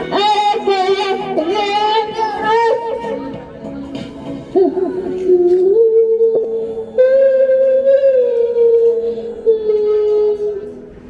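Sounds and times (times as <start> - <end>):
high voice singing long notes: 4.5 - 10.7.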